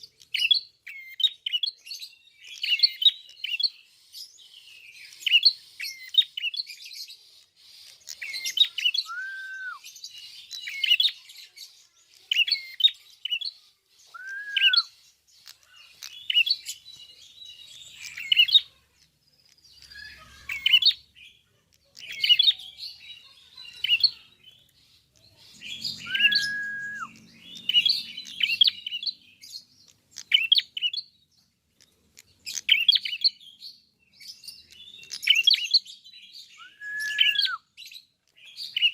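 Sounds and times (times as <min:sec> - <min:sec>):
bird chirping: 0:00.0 - 0:38.9
bird slurred whistles: 0:08.4 - 0:09.8, 0:14.1 - 0:14.9, 0:26.0 - 0:27.2, 0:36.6 - 0:37.6.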